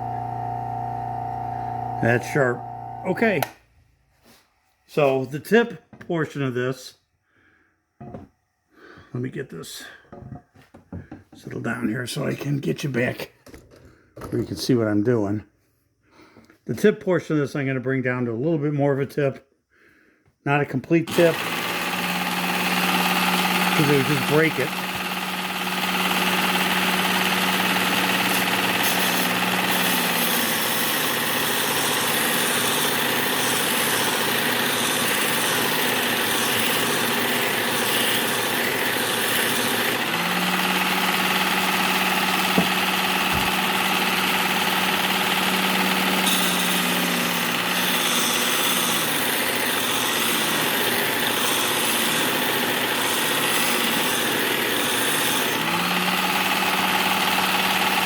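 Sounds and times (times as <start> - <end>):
motor hum: 0.0 - 3.2, 21.3 - 48.9
metal grinding on belt: 21.1 - 58.0.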